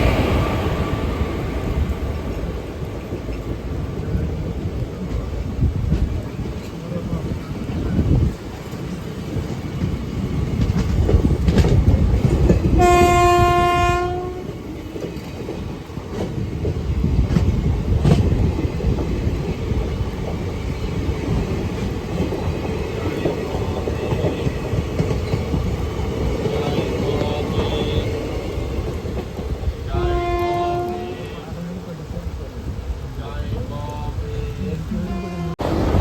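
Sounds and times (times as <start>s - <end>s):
train rumbling on rails: 0.0s - 36.0s
train horn blast: 12.8s - 14.5s, 29.9s - 31.5s, 34.5s - 35.6s.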